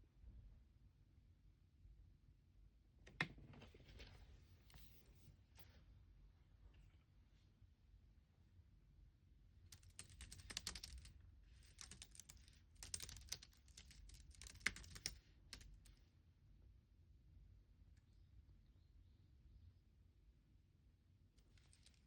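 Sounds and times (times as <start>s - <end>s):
keyboard typing: 9.8s - 15.8s.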